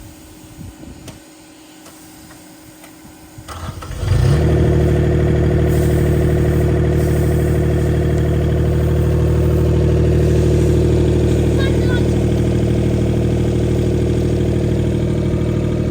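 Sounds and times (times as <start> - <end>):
skid steer engine starting and running: 3.4 - 15.9.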